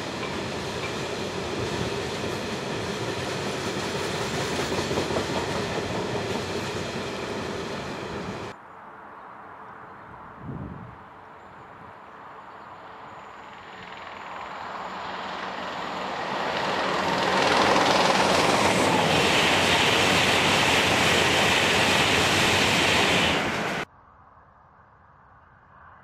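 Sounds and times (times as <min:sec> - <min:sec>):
train passing at speed: 0:00.0 - 0:08.6, 0:12.4 - 0:23.9.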